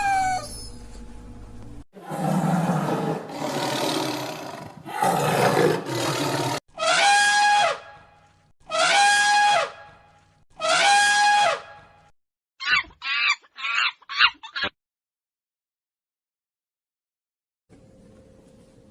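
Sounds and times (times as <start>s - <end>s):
animal growling roars: 2.0s - 6.6s
steady-pitched animal calls: 12.6s - 14.7s.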